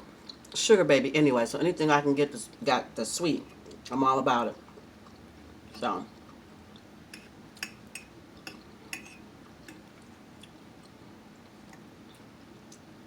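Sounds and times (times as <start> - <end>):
cutlery clicking on a plate: 7.1 - 9.8.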